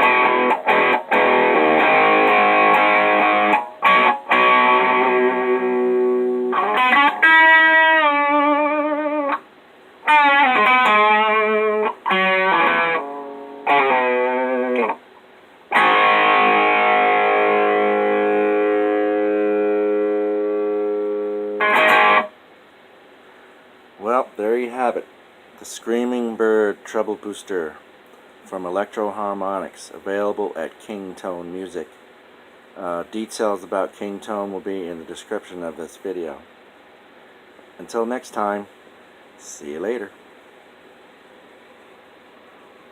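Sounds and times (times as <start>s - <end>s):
distorted electric guitar: 0.0s - 15.1s, 15.7s - 22.4s.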